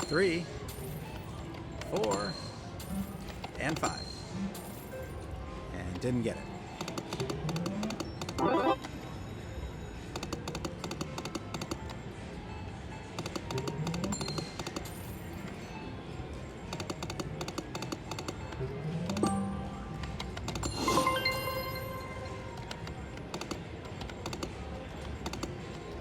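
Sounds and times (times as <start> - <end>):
slot machine reel clicking: 7.0 - 8.9
slot machine music: 7.5 - 9.2, 18.6 - 23.8
chiming tones: 8.4 - 8.8, 20.7 - 22.5.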